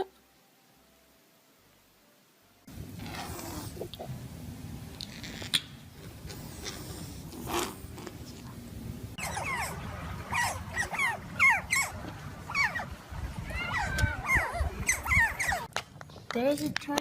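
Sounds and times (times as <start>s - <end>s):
steady low rumble: 2.7s - 15.7s
animal high descending calls: 9.2s - 15.7s.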